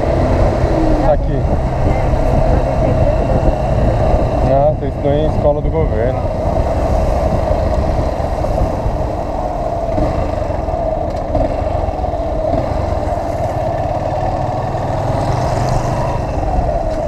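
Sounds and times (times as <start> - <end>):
motorcycle engine drone: 0.0 - 17.0.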